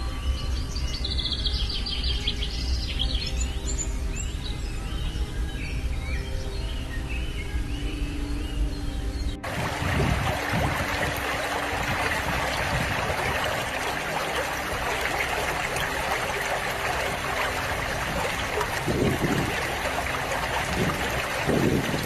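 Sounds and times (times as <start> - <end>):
low rumbles: 9.4 - 22.0
running water rushing: 9.4 - 22.0.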